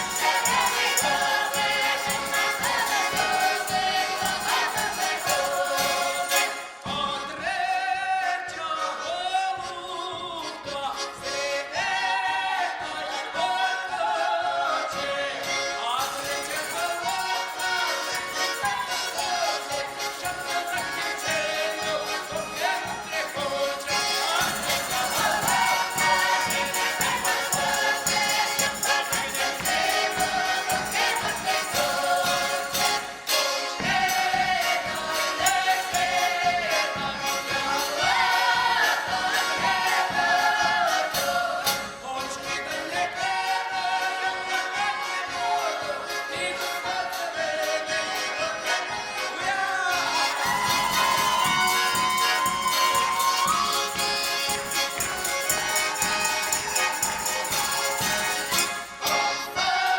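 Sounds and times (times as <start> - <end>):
jingling percussion beat: 0.0 - 7.0, 15.9 - 42.0, 48.9 - 59.6
group singing folk song: 0.0 - 59.9.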